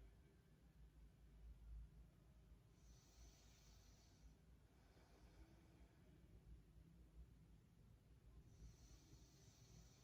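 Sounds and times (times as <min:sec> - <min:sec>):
faint slow breath: 0:02.7 - 0:06.3, 0:08.4 - 0:10.0.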